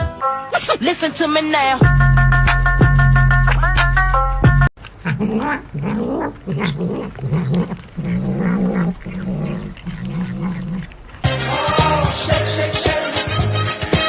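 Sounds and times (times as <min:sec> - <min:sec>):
cat yowling: 0:05.0 - 0:11.2.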